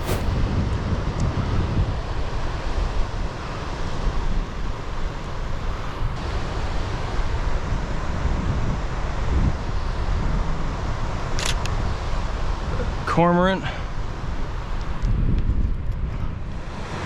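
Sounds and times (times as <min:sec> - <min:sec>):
wind across microphone: 0:00.0 - 0:03.4, 0:14.0 - 0:17.0.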